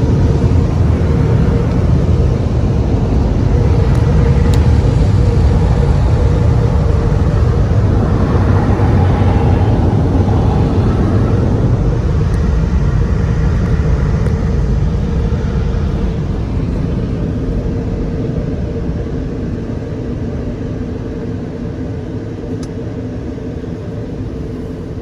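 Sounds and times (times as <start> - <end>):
car wash rushing noise: 0.0 - 18.7
low rumble: 0.0 - 21.8.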